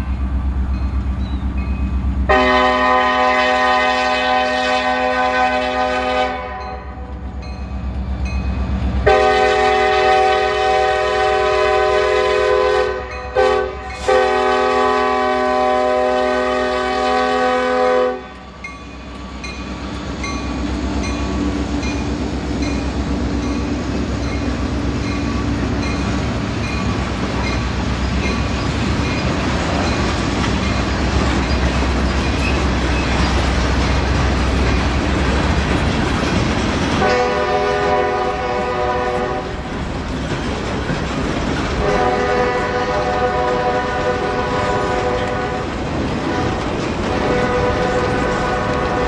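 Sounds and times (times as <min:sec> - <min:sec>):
diesel locomotive rumbling past: 0:00.0 - 0:49.0
locomotive chime horn blasts: 0:02.3 - 0:07.2, 0:09.0 - 0:18.7, 0:37.0 - 0:39.6, 0:41.8 - 0:45.7, 0:46.3 - 0:49.0
wheels clacking over rail joints: 0:18.3 - 0:49.0.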